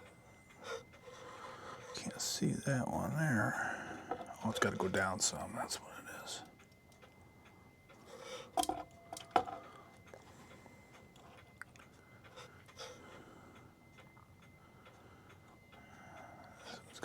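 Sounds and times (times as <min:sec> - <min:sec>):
clock ticking faintly: 0:06.4 - 0:17.0
metal parts clicking and knocking: 0:08.6 - 0:09.7.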